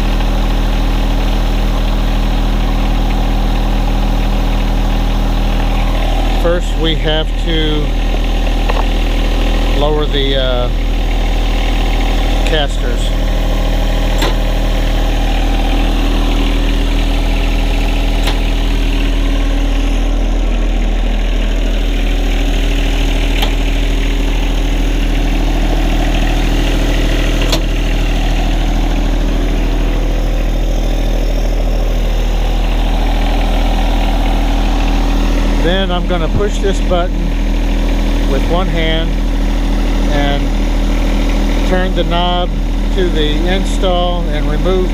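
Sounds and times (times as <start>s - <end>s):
diesel engine idling: 0.0s - 44.9s
sharp clicks: 14.1s - 14.6s, 18.2s - 18.6s.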